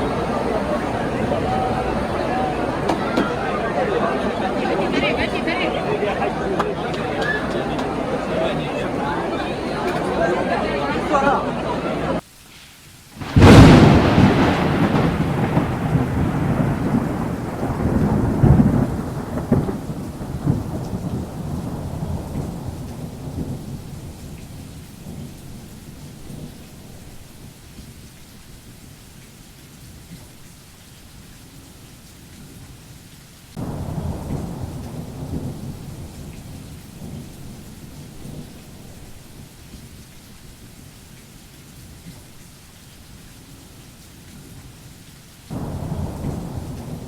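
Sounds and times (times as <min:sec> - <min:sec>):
thunder rumbling: 0:00.0 - 0:12.2, 0:13.2 - 0:27.6, 0:33.6 - 0:40.1, 0:45.5 - 0:47.0
heavy rain hissing: 0:00.0 - 0:47.0.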